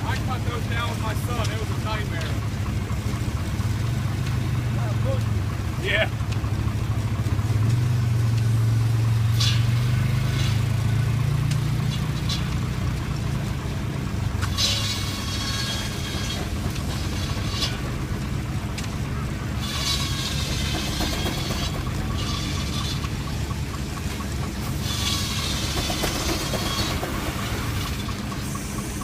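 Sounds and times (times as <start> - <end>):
steam engine drone: 0.0 - 29.0
mill saw rasping: 8.6 - 13.4, 14.4 - 29.0.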